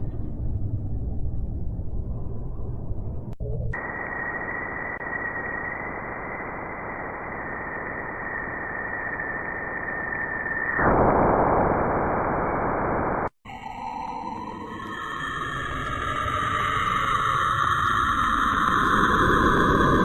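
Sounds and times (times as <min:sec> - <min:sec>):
steady high whistle: 0:03.8 - 0:11.0
static-like hiss: 0:03.8 - 0:13.3.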